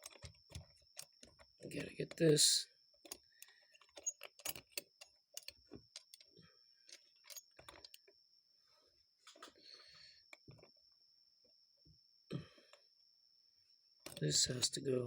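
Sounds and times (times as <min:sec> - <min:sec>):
small metal parts clicking: 0:00.0 - 0:08.1, 0:14.0 - 0:14.3.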